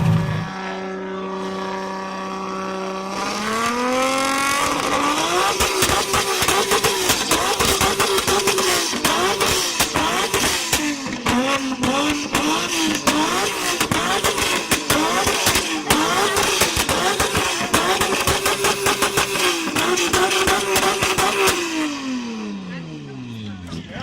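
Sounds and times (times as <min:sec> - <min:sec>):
car engine at high revs: 0:00.0 - 0:24.0
exhaust pops and cracks: 0:04.7 - 0:21.6.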